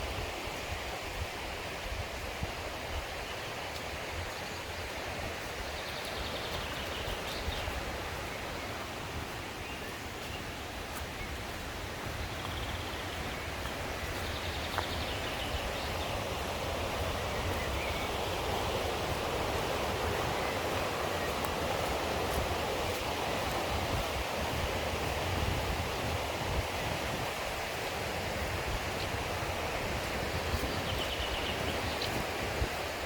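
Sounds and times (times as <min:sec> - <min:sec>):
stream rushing over rocks: 0:00.0 - 0:33.0.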